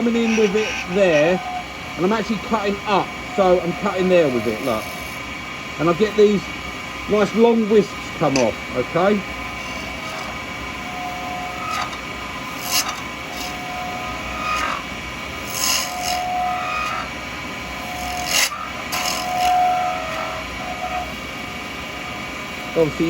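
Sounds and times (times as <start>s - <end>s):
brief whine: 0.0s - 5.2s, 9.4s - 21.2s
cutter shaving acrylic on lathe: 0.0s - 5.2s, 5.8s - 23.0s
lathe humming: 0.0s - 23.0s.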